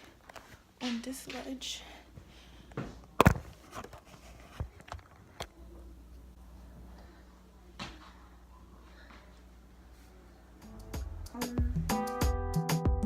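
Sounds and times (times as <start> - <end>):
faint low hum: 0.0 - 11.9
camera knocks and clunks: 3.2 - 4.0.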